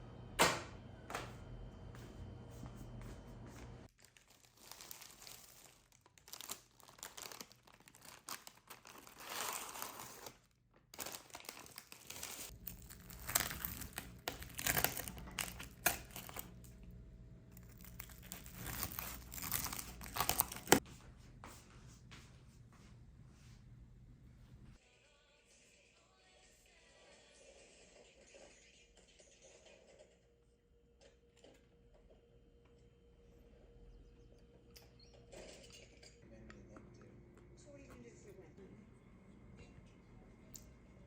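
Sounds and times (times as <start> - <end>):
packaging crinkling and tearing: 3.9 - 16.8, 17.6 - 20.8.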